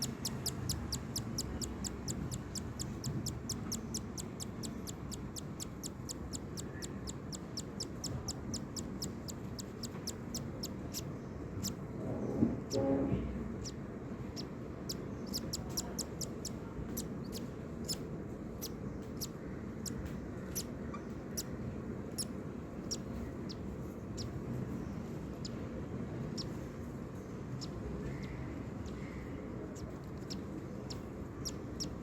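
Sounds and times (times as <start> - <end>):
chick peeping: 0.0 - 11.0, 14.4 - 18.0.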